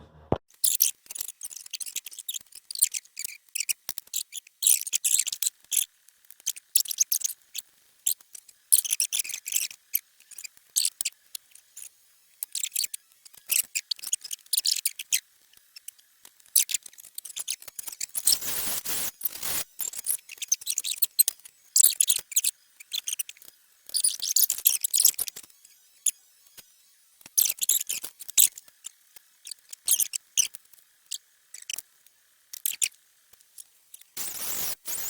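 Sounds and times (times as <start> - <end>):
scraping noise: 0.0 - 0.4.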